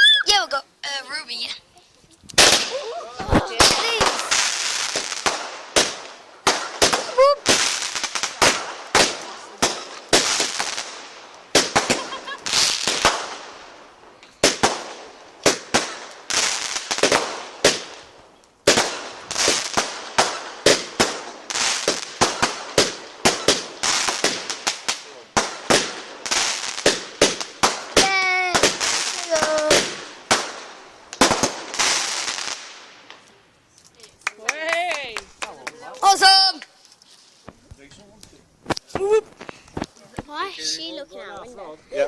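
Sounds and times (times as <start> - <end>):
crackling hiss: 0.0 - 42.0
fireworks bangs: 2.3 - 33.4.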